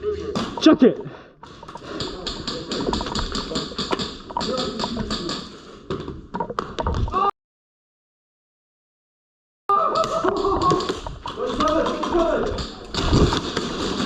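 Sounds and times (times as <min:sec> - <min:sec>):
airsoft guns firing: 0:01.8 - 0:05.6, 0:10.0 - 0:14.0.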